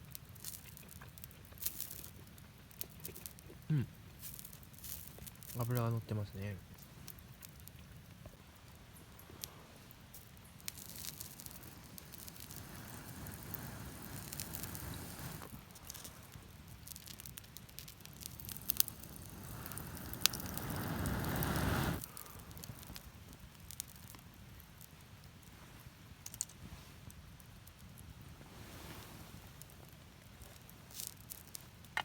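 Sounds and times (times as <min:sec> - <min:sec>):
campfire crackling and popping: 0:00.0 - 0:32.0
fire rushing swells: 0:10.4 - 0:15.6, 0:17.2 - 0:23.9.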